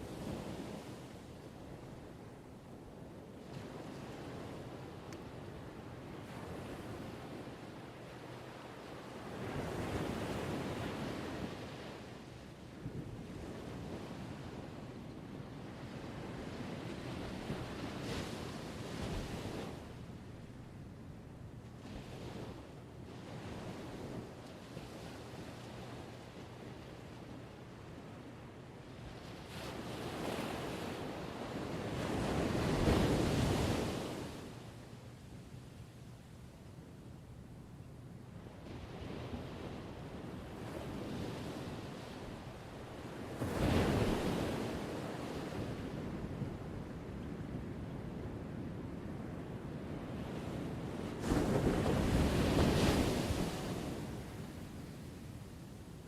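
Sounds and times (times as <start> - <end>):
ocean waves washing on shore: 21.6 - 35.2, 38.5 - 56.0
wind noise: 38.5 - 56.0.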